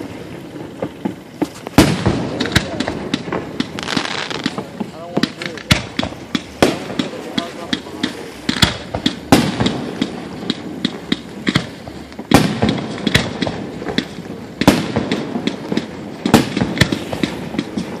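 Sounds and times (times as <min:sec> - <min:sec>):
firework booms: 0:00.0 - 0:18.0
fireworks crackling and popping: 0:00.0 - 0:18.0.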